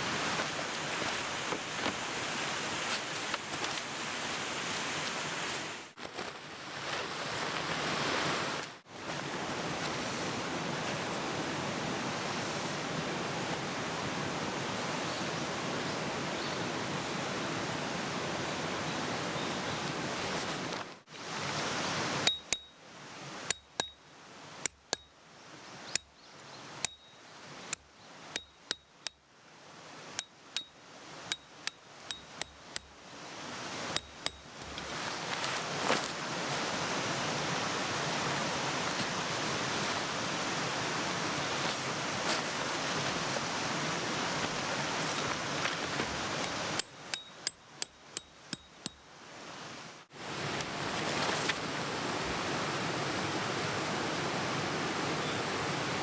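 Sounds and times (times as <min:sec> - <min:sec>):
mountain stream rushing: 0:00.0 - 0:23.5, 0:30.8 - 0:47.2, 0:49.1 - 0:56.0
hammer striking metal tent pegs: 0:22.3 - 0:22.8, 0:23.5 - 0:24.0, 0:31.3 - 0:32.9, 0:46.8 - 0:49.0.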